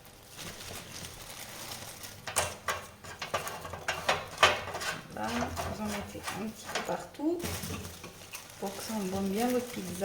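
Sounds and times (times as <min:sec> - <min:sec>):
soft rustle: 0:00.0 - 0:02.3, 0:04.7 - 0:10.0
wood knocking on metal tray: 0:02.3 - 0:08.2.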